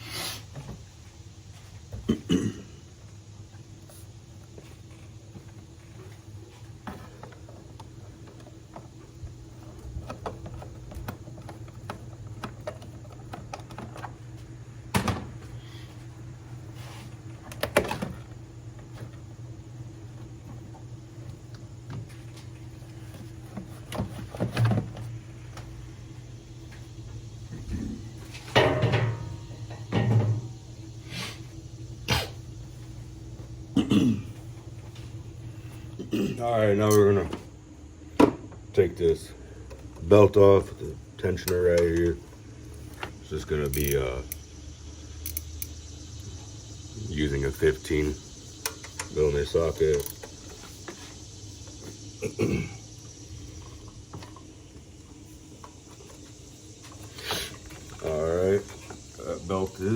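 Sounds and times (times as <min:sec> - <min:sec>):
steady low hum: 0:00.0 - 0:59.9
hand tools and metal parts clanking: 0:43.0 - 0:44.4, 0:48.7 - 0:51.0.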